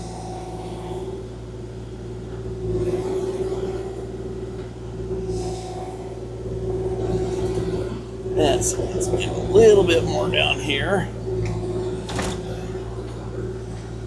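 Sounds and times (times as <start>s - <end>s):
excavator whine: 0.0s - 14.0s
mini excavator diesel hum: 8.3s - 11.7s.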